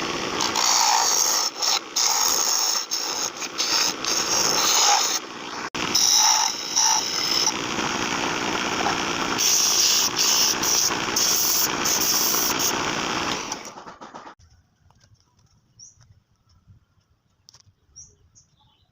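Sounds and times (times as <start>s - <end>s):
wood lathe whirring: 0.0s - 14.4s.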